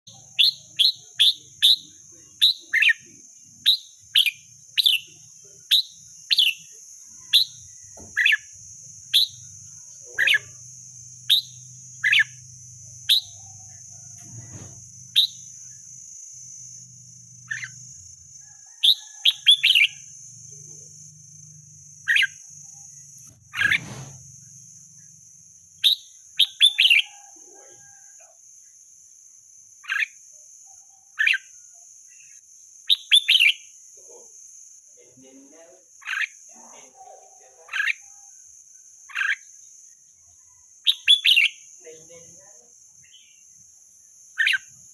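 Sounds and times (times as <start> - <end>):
bulbul calling: 0.1 - 13.8, 17.5 - 17.8, 22.0 - 22.4, 23.2 - 24.1.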